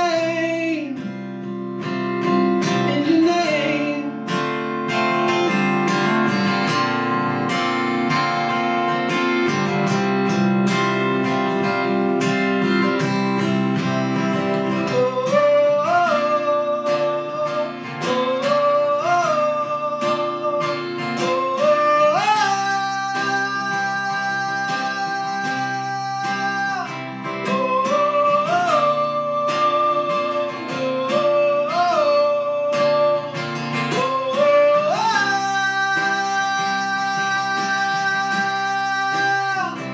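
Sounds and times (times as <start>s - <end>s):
acoustic guitar playing: 0.0s - 39.9s.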